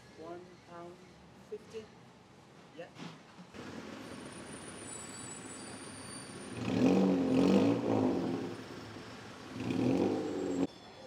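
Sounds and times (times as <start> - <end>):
street traffic noise: 0.0 - 11.0
vehicle engine revving past: 6.4 - 10.7.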